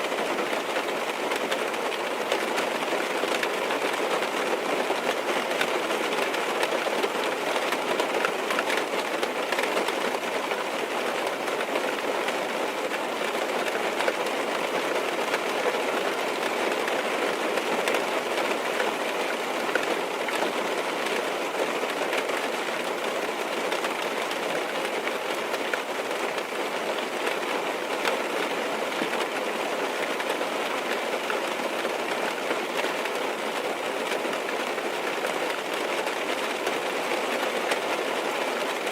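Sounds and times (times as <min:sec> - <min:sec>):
heavy rain drumming on car roof: 0:00.0 - 0:38.9.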